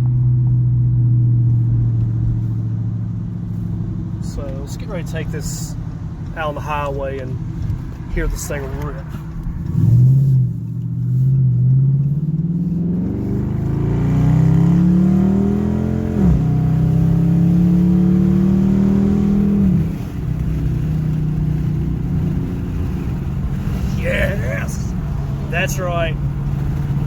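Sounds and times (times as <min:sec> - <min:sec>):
car exhaust accelerating hard: 0:00.0 - 0:27.0.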